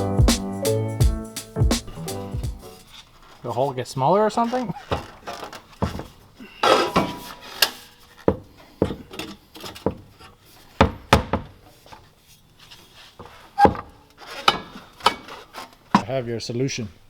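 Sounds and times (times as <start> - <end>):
metal pipes knocking and scraping: 4.4 - 12.0, 13.2 - 16.1.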